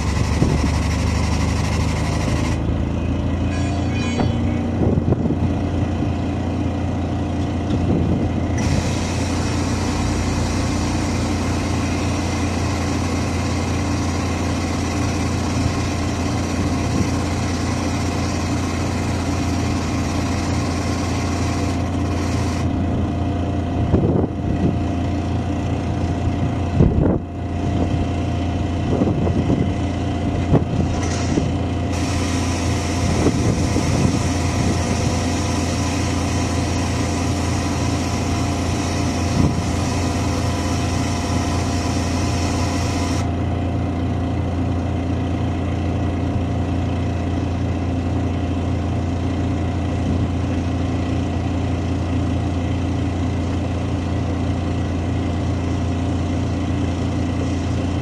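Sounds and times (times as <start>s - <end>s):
diesel engine idling: 0.0s - 58.0s
loud steady hiss: 31.9s - 43.2s.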